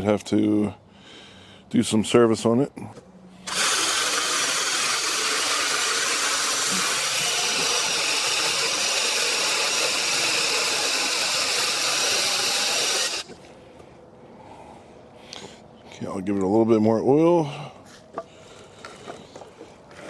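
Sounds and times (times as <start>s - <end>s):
mini chainsaw running: 3.5s - 13.3s.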